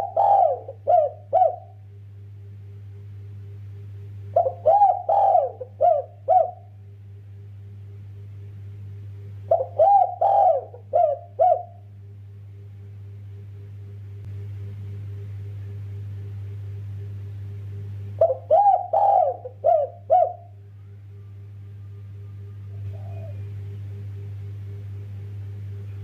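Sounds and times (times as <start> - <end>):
dove cooing: 0.0 - 1.8, 4.3 - 6.8, 9.5 - 11.9, 18.2 - 20.6, 22.7 - 23.6
steady low hum: 0.0 - 26.0.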